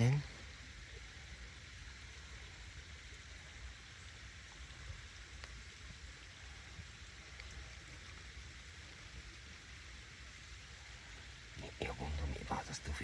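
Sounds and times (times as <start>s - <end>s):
faint water hiss: 0.0s - 13.0s
light ticks: 5.3s - 6.0s, 7.2s - 8.3s.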